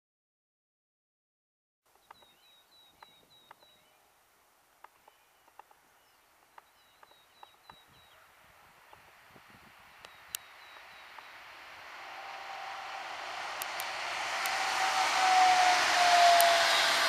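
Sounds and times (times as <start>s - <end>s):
small bird chirping: 1.9s - 4.1s, 4.8s - 9.2s, 9.9s - 11.7s
distant train hiss: 2.1s - 17.0s.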